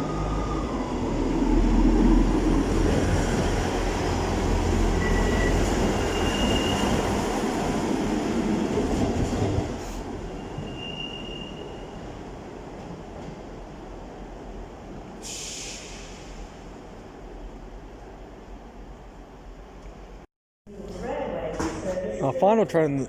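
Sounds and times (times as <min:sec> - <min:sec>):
high wheel squeals: 0:05.0 - 0:07.0, 0:10.4 - 0:12.0.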